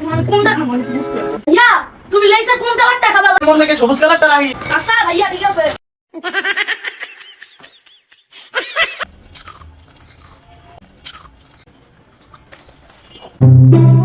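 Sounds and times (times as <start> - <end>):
potato chips crunching: 9.0 - 13.3
brassy musical sting: 13.4 - 14.0.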